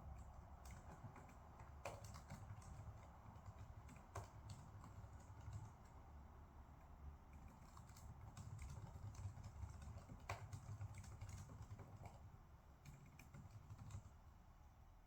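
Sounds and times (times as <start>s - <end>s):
computer keyboard typing: 0.6s - 5.7s, 7.4s - 12.2s, 12.8s - 14.1s.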